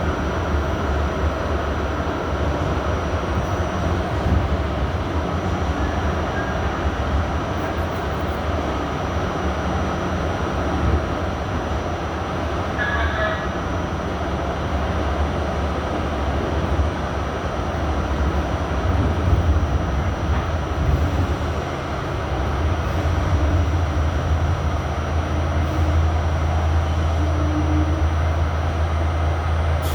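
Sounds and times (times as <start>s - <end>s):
subway car wheels rumbling: 0.0s - 29.9s
brief high squeal: 5.8s - 6.7s, 12.8s - 13.6s.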